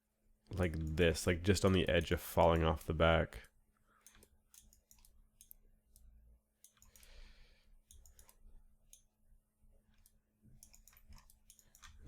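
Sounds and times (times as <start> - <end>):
computer mouse and keys clicking: 3.4 - 7.2, 7.8 - 9.2, 9.8 - 12.0.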